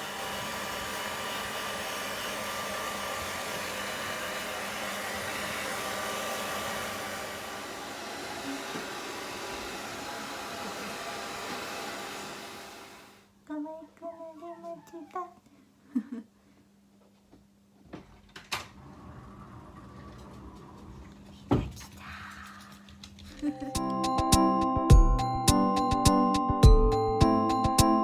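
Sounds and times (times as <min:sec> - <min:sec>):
hair dryer blowing: 0:00.0 - 0:13.3.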